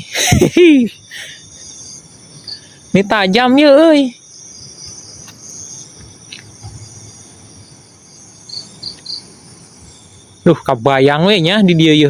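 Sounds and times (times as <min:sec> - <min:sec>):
crickets chirring: 0:00.0 - 0:12.0
short insect chirps: 0:00.0 - 0:12.0
faint clicks: 0:06.0 - 0:06.8.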